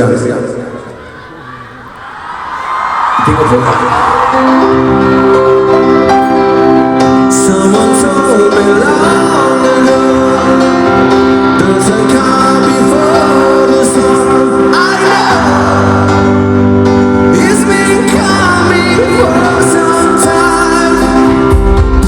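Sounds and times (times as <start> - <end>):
band music with singing: 2.6 - 22.0.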